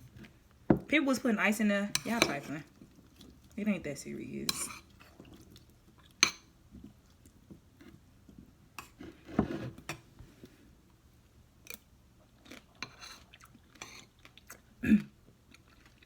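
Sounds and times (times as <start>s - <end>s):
spoon scraping bowl: 1.9s - 2.9s, 4.4s - 5.3s, 8.8s - 10.0s, 12.8s - 14.1s.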